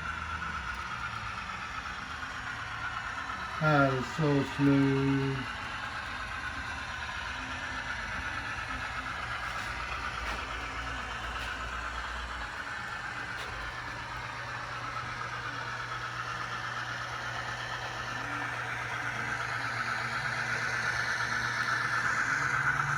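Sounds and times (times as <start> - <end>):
locomotive mechanical hum: 0.0 - 22.9.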